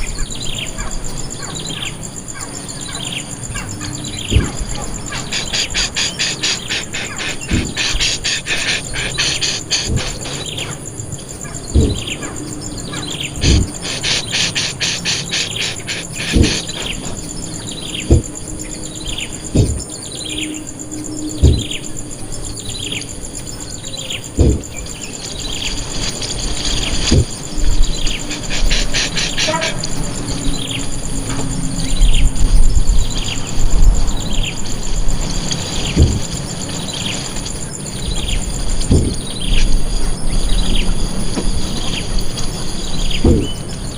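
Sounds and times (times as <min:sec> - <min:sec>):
fast insect-like trilling: 0:01.4 - 0:43.9
low thumps: 0:04.2 - 0:05.0, 0:06.7 - 0:08.2, 0:09.4 - 0:10.6, 0:11.6 - 0:12.3, 0:13.4 - 0:14.0, 0:16.1 - 0:17.4, 0:18.0 - 0:18.7, 0:19.4 - 0:20.0, 0:21.3 - 0:22.0, 0:24.2 - 0:25.0, 0:26.8 - 0:28.0, 0:35.9 - 0:36.4, 0:38.8 - 0:39.4, 0:43.1 - 0:43.8.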